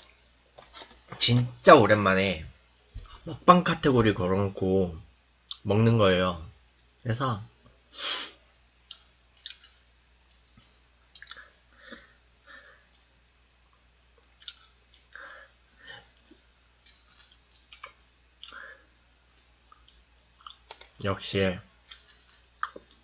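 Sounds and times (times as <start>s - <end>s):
chewing crunches and mouth sounds: 8.8s - 11.6s, 13.7s - 23.0s.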